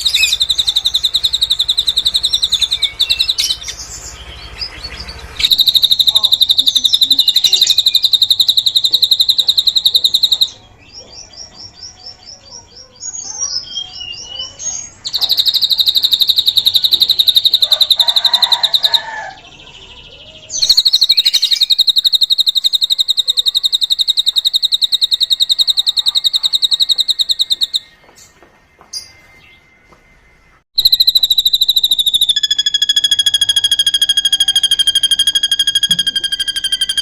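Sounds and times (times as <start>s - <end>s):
drongo singing trills and chirps: 0.0s - 29.6s, 30.8s - 37.0s.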